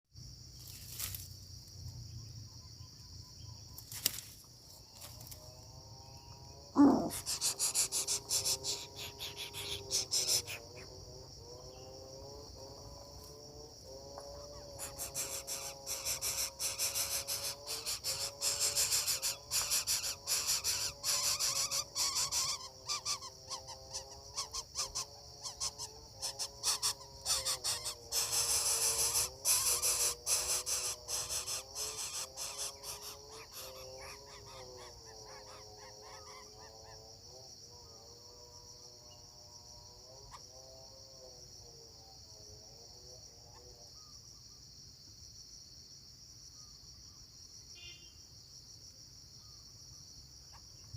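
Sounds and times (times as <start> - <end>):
insect chirr: 0.0 - 50.9
bird chick calling: 6.8 - 10.9, 14.4 - 36.7.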